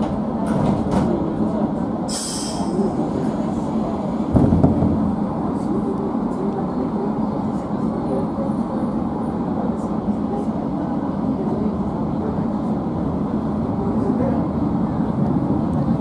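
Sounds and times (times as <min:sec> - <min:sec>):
train wheels rumbling: 0:00.0 - 0:08.2.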